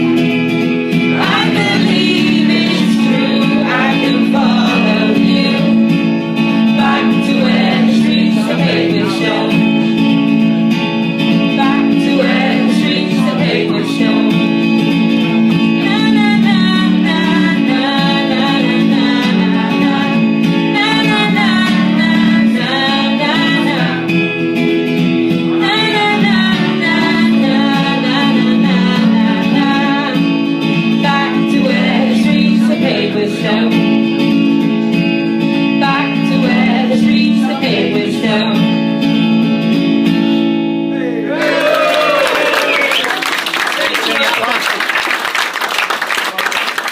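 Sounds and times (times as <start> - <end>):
guitar backing: 0.0 - 46.9
woman singing: 1.1 - 10.1, 11.3 - 24.2, 25.5 - 34.5, 35.5 - 39.0.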